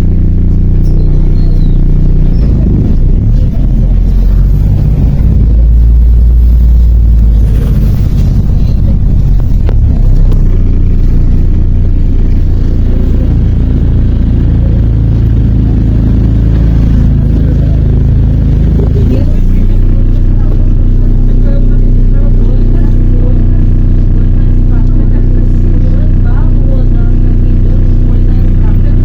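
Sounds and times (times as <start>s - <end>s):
bus diesel engine rumbling: 0.0s - 29.0s.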